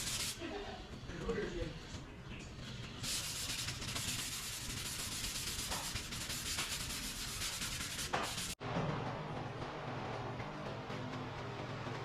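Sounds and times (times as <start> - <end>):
abrasive sanding on metal: 0.0 - 0.5, 3.0 - 8.6.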